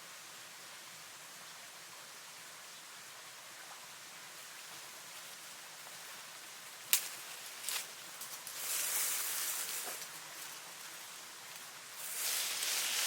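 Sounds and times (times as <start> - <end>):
faint outdoor hiss: 0.0 - 13.0
sharp crack: 6.9 - 7.9.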